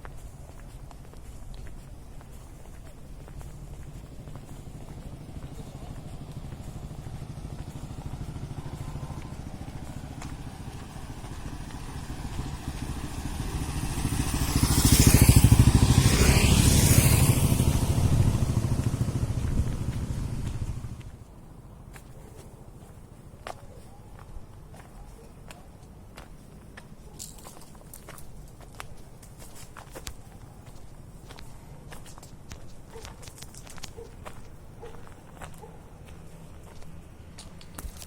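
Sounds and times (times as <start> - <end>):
vehicle engine passing by: 3.9 - 21.1.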